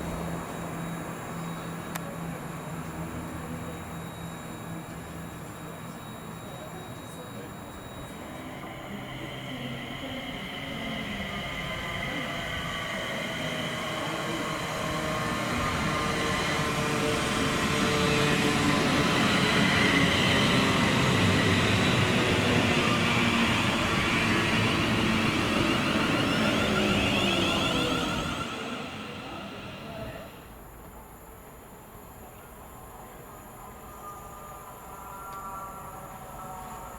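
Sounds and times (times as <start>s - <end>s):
train passing: 0.0s - 36.9s.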